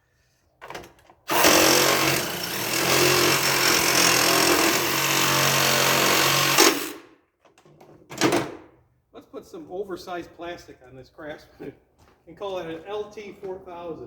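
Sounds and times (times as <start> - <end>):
power tool cutting plastic: 1.3 - 7.1.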